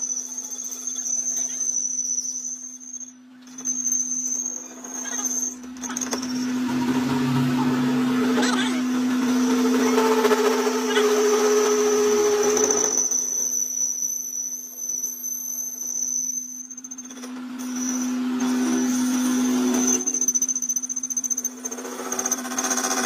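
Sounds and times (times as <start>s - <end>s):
rough noisy working sound: 0.0s - 23.0s
workshop machine humming and whining: 2.8s - 14.7s, 16.6s - 23.0s.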